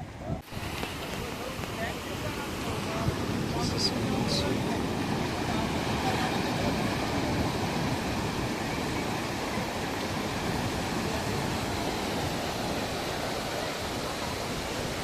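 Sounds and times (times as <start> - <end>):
ocean surf washing on beach: 0.0 - 15.0.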